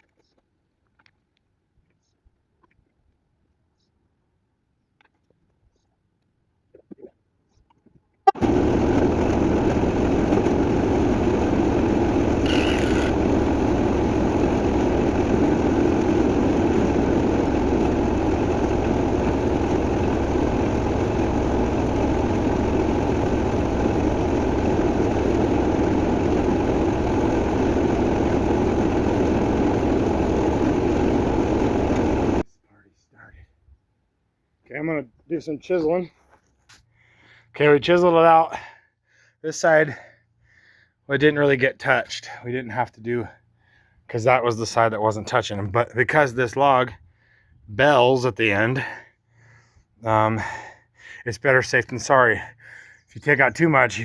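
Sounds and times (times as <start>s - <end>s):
motor running steadily: 8.4s - 32.4s.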